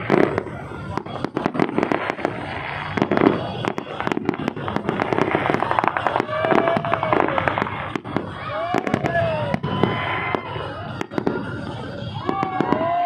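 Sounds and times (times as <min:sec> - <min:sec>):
fireworks crackling pops: 0:00.0 - 0:13.0.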